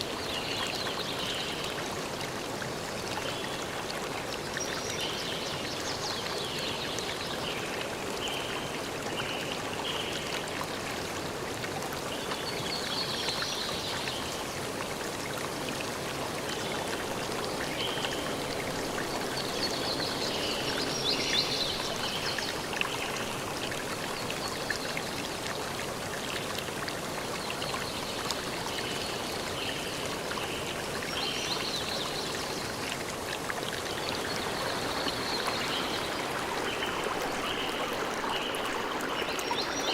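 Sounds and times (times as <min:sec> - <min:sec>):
forest stream flowing: 0:00.0 - 0:39.9.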